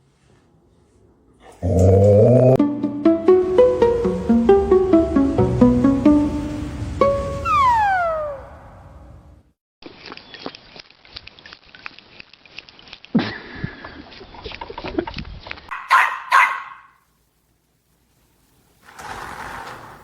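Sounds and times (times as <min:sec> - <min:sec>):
dog barking: 0:15.7 - 0:17.0.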